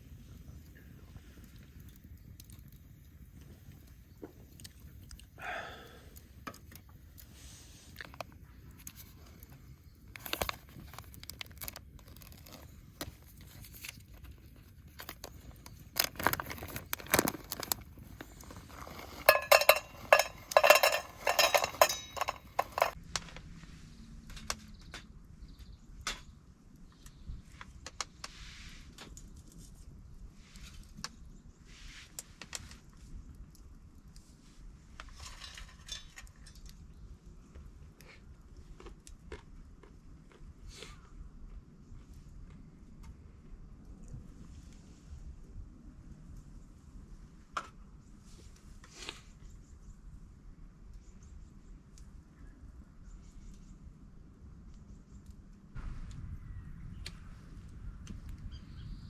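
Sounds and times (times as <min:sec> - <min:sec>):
small hard objects clicking: 0:14.9 - 0:23.0
ringing clinks and rattles: 0:19.2 - 0:23.0.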